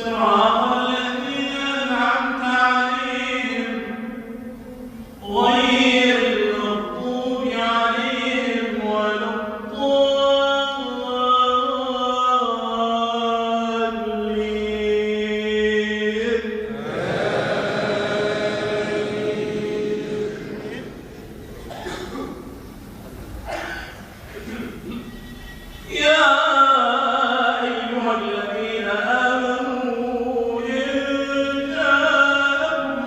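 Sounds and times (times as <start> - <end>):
man chanting melodic recitation: 0.0 - 4.5, 5.1 - 21.1, 25.8 - 33.0.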